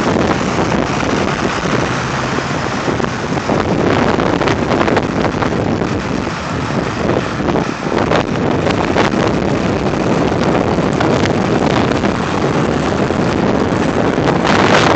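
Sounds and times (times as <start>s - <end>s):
tractor engines running: 0.0s - 14.9s
wind buffeting microphone: 0.0s - 14.9s.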